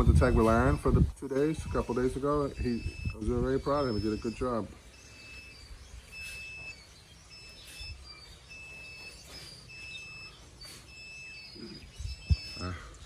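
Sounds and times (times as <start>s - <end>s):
high-pitched alarm beeps: 0.0s - 13.0s.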